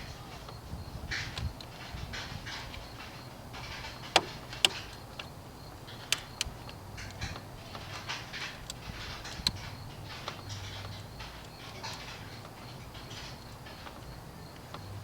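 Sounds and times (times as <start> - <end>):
sharp clicks: 3.9 - 5.3, 5.9 - 12.6.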